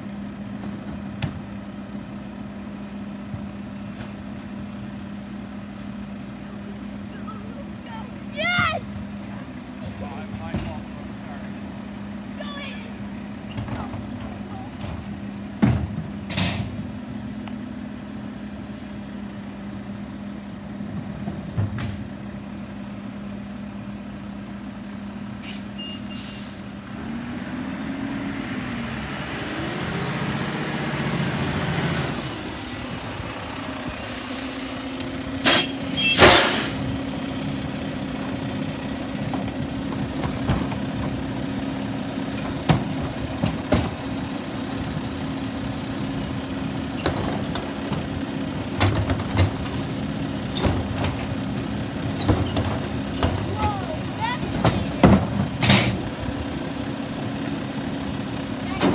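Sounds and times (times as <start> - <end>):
garbage truck engine running: 0.0 - 58.9
air brake hiss: 25.4 - 26.7, 34.0 - 34.8, 35.4 - 36.9.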